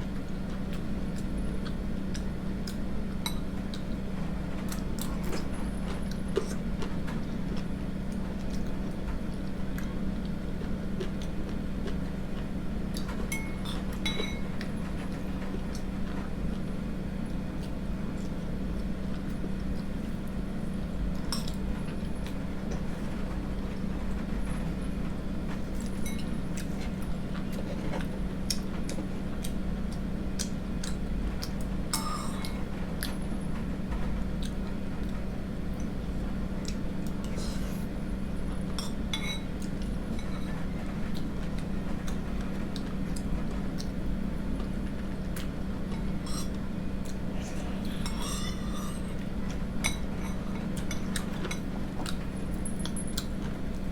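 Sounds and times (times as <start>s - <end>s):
steady low hum: 0.0s - 53.9s
cutlery clinking against a bowl: 13.3s - 14.6s, 21.3s - 21.6s, 25.9s - 26.3s, 31.9s - 32.6s, 38.8s - 40.5s, 46.2s - 47.2s, 47.9s - 49.2s, 49.8s - 53.3s.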